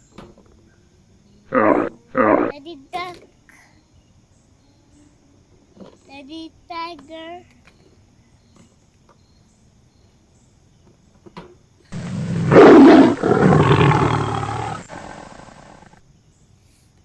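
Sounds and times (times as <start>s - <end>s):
tiger roaring: 1.5s - 2.5s, 12.0s - 16.0s.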